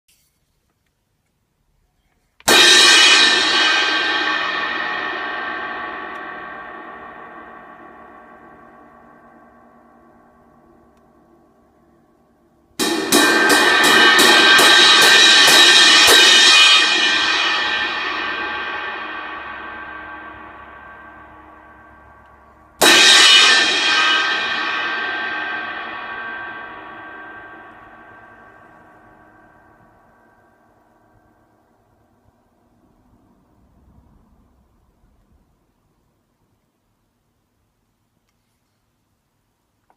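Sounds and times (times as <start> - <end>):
crash cymbal struck and ringing: 2.5 - 10.6, 12.8 - 31.5.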